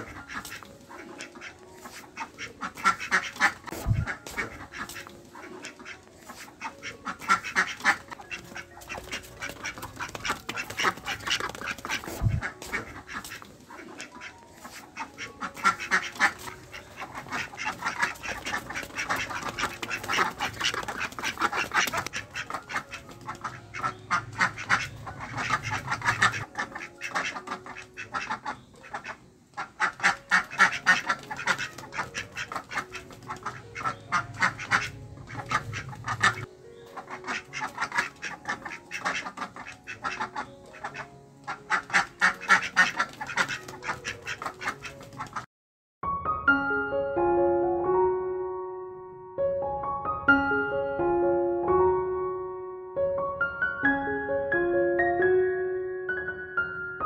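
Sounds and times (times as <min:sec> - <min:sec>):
ducks quacking: 0:00.0 - 0:45.5.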